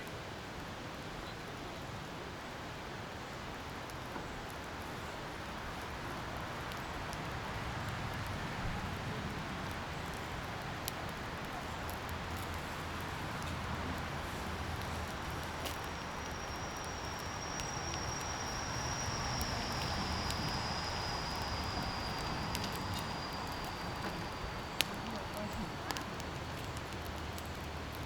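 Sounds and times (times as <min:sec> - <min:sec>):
thin high whine: 0:14.3 - 0:25.3.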